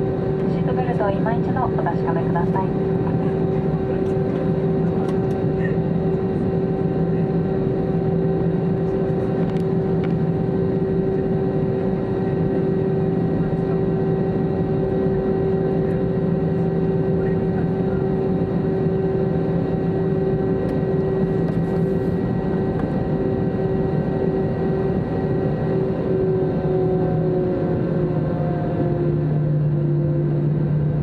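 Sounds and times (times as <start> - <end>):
jet engine droning hum: 0.0 - 31.0.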